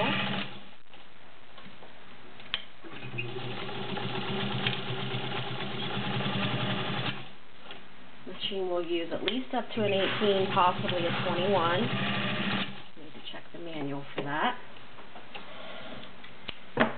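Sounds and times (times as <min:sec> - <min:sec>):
sewing machine motor humming: 0:00.0 - 0:00.6, 0:02.9 - 0:07.3, 0:09.8 - 0:12.8.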